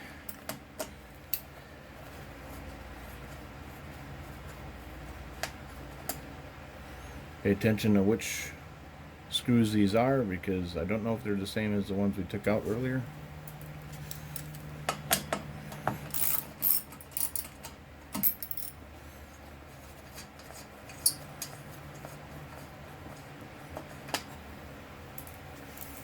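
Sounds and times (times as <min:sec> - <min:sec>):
low steady hum: 0:00.0 - 0:26.0
screws and tools clinking: 0:16.1 - 0:18.8.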